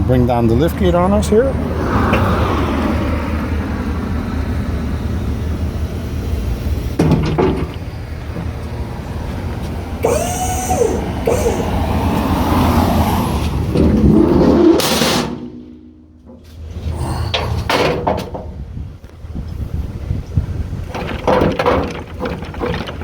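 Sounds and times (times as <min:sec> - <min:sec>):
hydraulic liftgate humming: 0:02.0 - 0:18.9
metallic clanks: 0:07.0 - 0:08.8, 0:13.6 - 0:18.7
short squeal: 0:10.0 - 0:12.1.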